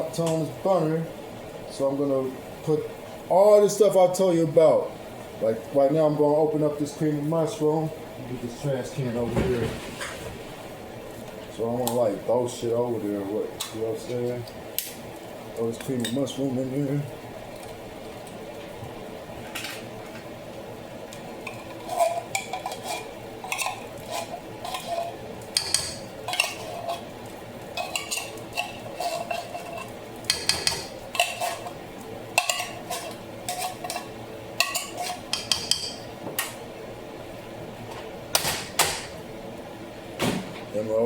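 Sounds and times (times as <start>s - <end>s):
metal utensil scraping a can: 21.5s - 27.1s, 27.8s - 31.8s, 32.4s - 35.6s.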